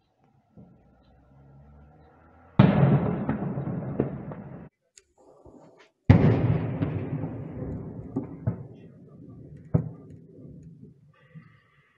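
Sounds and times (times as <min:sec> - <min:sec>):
sharp bangs: 0:02.4 - 0:04.7, 0:06.1 - 0:10.9
loud explosion rumbling: 0:02.6 - 0:04.7, 0:06.1 - 0:10.1.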